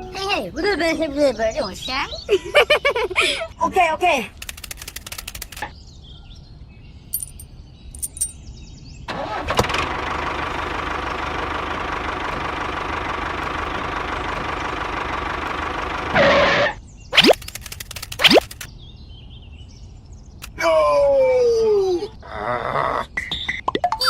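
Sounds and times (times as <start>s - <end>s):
engine running: 9.1s - 18.7s.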